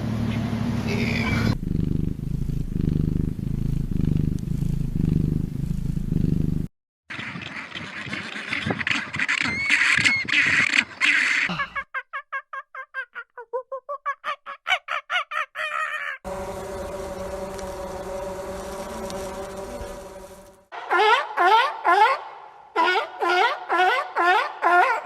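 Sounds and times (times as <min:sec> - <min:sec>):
cat purring: 0:01.5 - 0:06.7.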